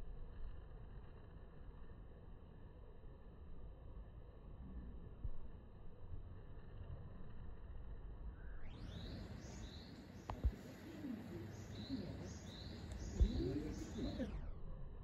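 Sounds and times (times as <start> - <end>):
small bird chirping: 8.4 - 14.4.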